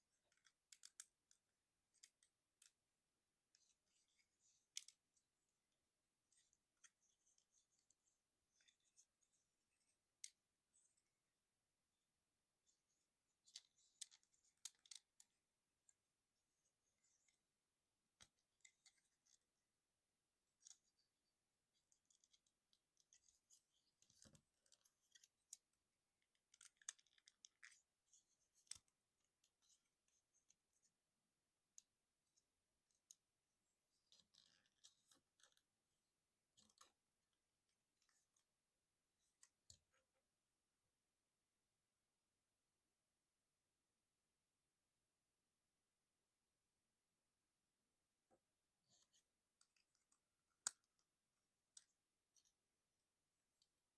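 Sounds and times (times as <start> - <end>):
plastic toy parts clicking: 26.3 - 30.9.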